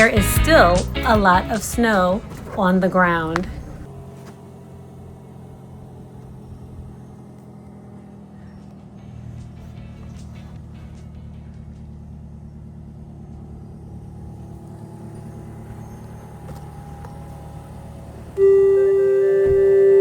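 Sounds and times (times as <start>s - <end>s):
bell-like ringing tone: 18.4s - 20.0s.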